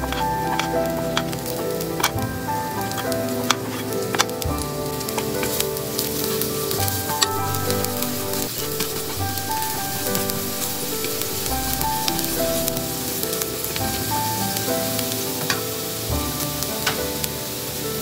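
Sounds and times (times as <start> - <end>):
background music: 0.0 - 18.0
garlic sizzling in oil: 0.0 - 18.0.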